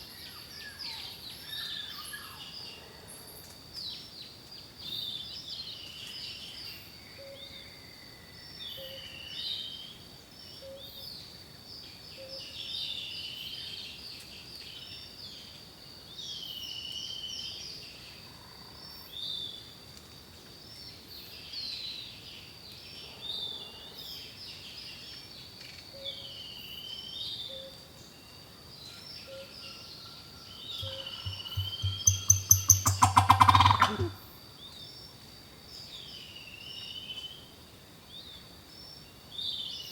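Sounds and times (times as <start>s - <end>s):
songbirds singing: 20.6s - 37.5s
thin high tone: 30.8s - 34.2s.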